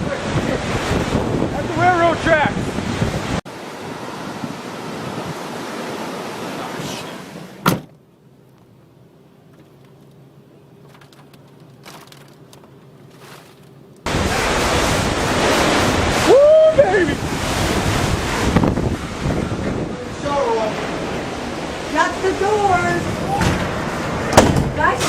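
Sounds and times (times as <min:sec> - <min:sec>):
strong wind buffeting microphone: 0:00.0 - 0:06.9, 0:14.1 - 0:25.0.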